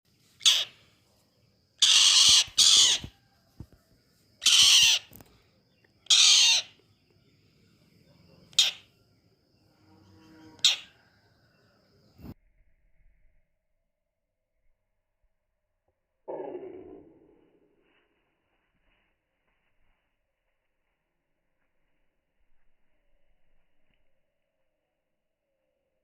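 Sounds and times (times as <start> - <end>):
bird giving harsh rasping calls: 0.4 - 0.8, 1.8 - 3.1, 4.4 - 5.2, 6.0 - 6.8, 8.5 - 8.9, 10.6 - 11.0.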